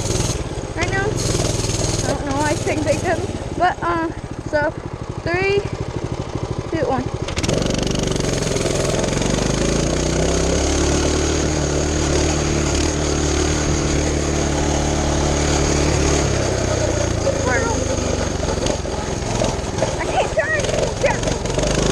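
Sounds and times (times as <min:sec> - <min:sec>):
small engine at full throttle: 0:00.0 - 0:21.9.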